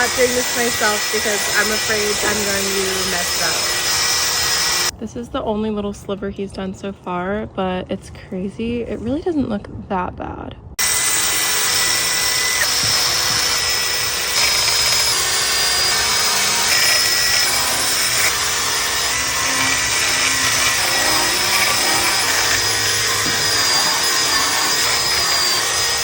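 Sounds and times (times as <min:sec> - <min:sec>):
cordless power tool scrubbing steel: 0:00.0 - 0:04.9, 0:10.8 - 0:26.0.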